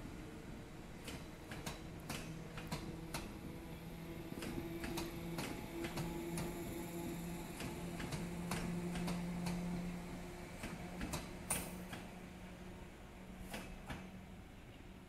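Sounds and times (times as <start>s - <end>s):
electric train hum: 0.0s - 15.0s
train wheels clicking on rail joints: 1.0s - 12.7s, 13.3s - 14.2s.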